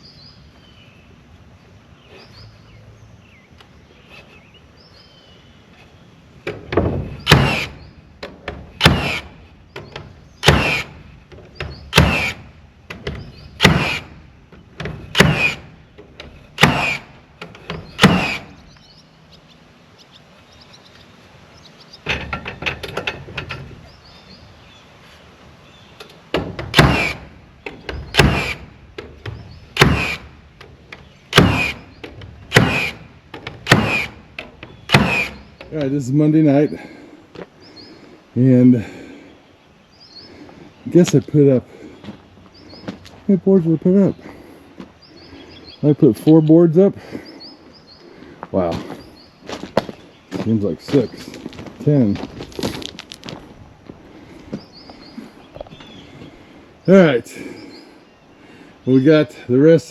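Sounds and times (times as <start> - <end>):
birds chirping faintly: 0.0 - 59.9
hammer nailing boards: 11.6 - 12.4, 13.0 - 14.0, 14.8 - 15.6, 16.6 - 17.0, 17.7 - 18.4, 26.4 - 27.2, 27.9 - 28.7, 29.8 - 30.2, 31.3 - 31.8, 32.5 - 34.2, 34.9 - 35.4.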